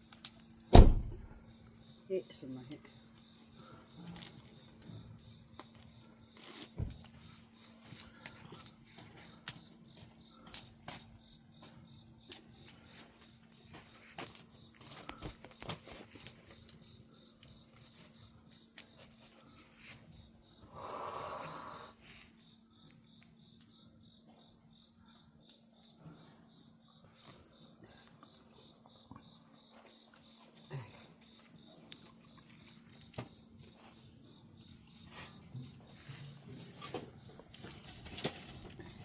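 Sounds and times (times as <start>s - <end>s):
insects trilling: 0.0s - 39.0s.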